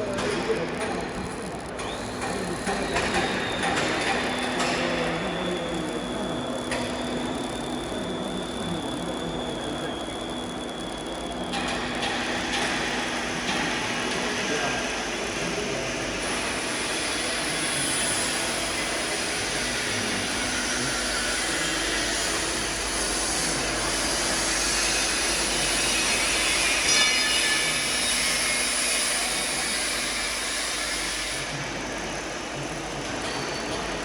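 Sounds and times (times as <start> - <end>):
tube mill machinery running: 0.0 - 34.0
high-pitched machine squeal: 1.8 - 34.0.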